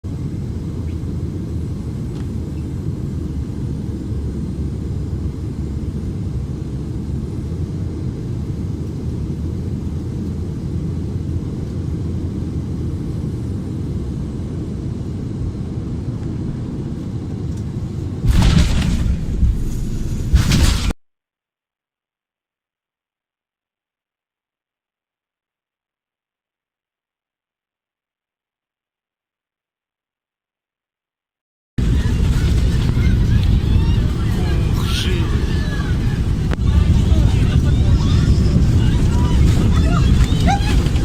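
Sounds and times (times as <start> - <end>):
airplane low rumble: 0.0 - 21.0, 31.8 - 41.0.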